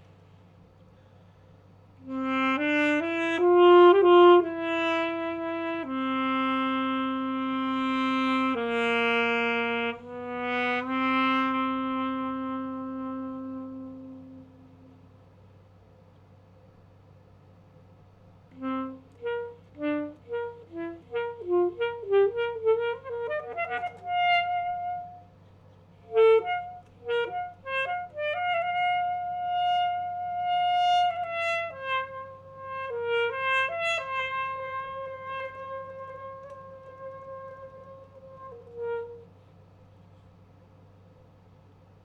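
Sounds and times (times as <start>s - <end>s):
alto saxophone solo: 1.9s - 15.4s, 18.5s - 40.4s.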